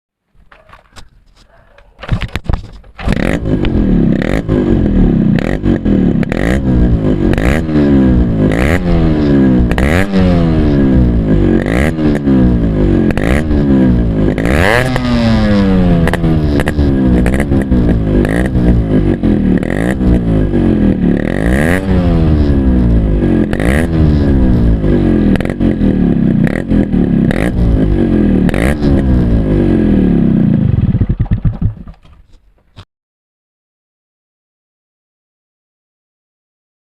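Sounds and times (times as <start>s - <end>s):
two-stroke engine revving: 3.0s - 31.0s.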